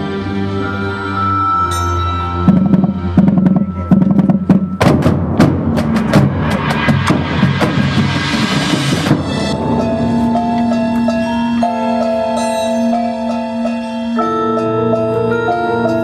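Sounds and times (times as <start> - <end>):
marching band chords: 0.0 - 15.2
sharp drum strikes: 2.5 - 11.3.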